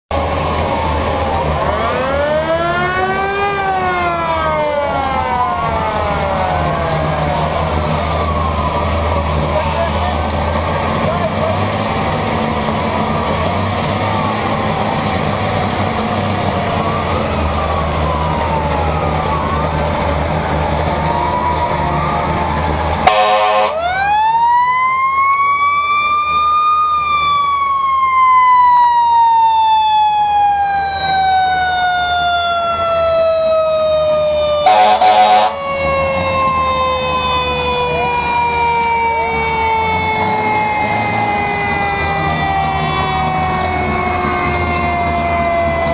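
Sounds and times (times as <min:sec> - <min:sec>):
engine rumble: 0:00.1 - 0:45.9
sirens wailing: 0:00.1 - 0:45.9
air horn blast: 0:23.0 - 0:23.8, 0:34.6 - 0:35.6.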